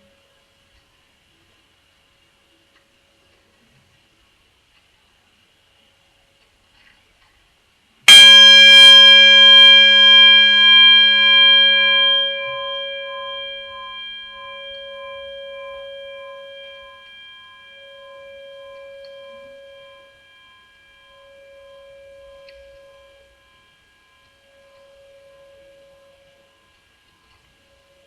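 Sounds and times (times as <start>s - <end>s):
metal bell ringing: 8.1s - 26.4s.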